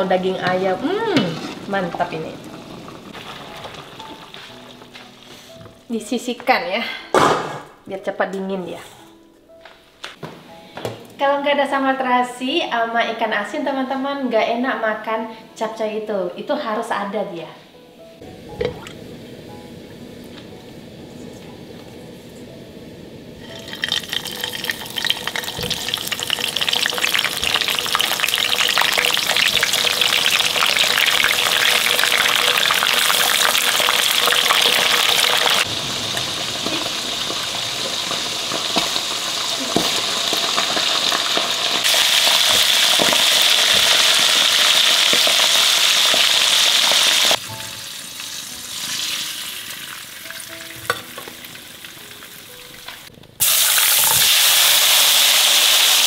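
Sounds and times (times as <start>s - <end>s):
food deep-frying in oil: 0.0s - 4.9s, 23.4s - 52.8s, 53.4s - 56.0s.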